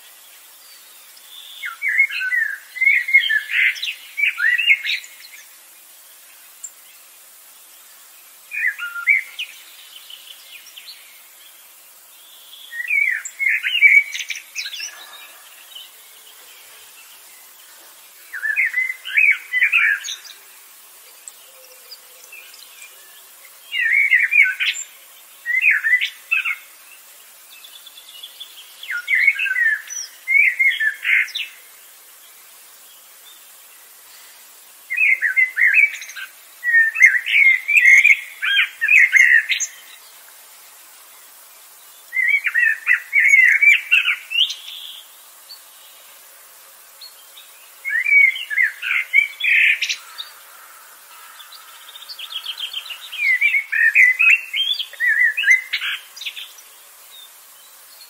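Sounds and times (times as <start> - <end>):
bird chirping: 8.5 - 31.6, 34.1 - 40.3, 41.8 - 46.1, 47.0 - 58.0.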